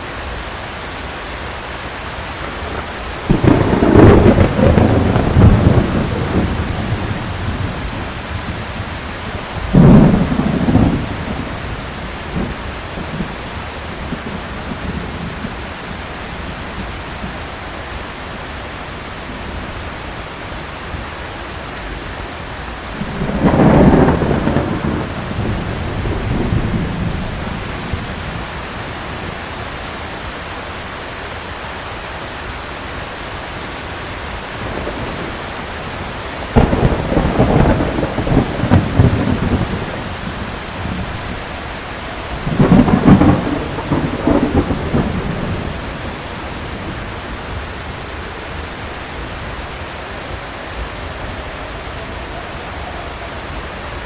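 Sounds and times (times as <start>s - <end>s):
heavy rain: 0.0s - 54.0s
thunder rolling: 1.8s - 20.0s, 20.9s - 30.0s, 34.3s - 52.8s.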